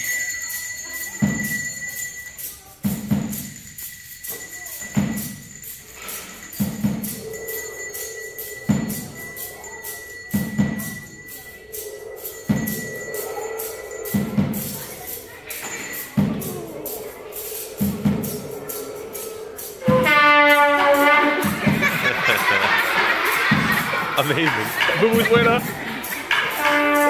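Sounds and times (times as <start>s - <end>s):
high ringing tone: 3.6s - 17.0s
low drum strokes: 12.3s - 15.3s, 16.0s - 27.0s.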